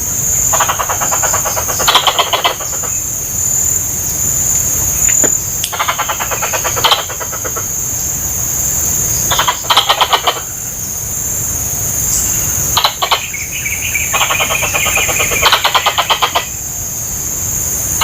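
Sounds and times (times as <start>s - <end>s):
squirrel chattering calls: 0.0s - 3.5s, 5.0s - 7.9s, 9.2s - 10.8s, 12.4s - 16.6s
steady high-pitched hiss: 0.0s - 18.0s.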